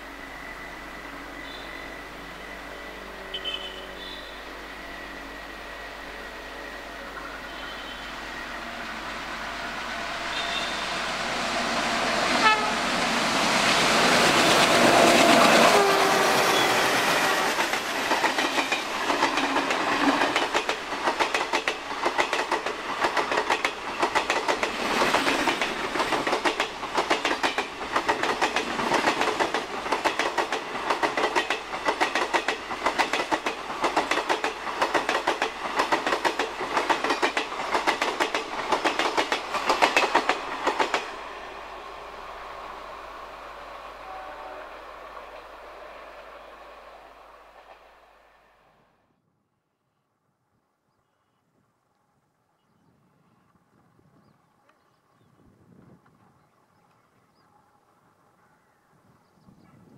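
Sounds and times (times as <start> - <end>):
diesel locomotive engines passing: 0.0 - 49.1
wheels clicking over rail joints: 17.5 - 41.2.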